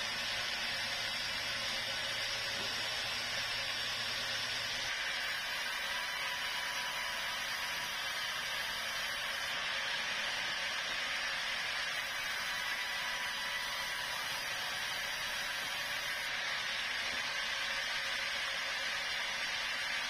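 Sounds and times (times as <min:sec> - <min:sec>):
sawmill saw cutting log: 0:00.0 - 0:20.0.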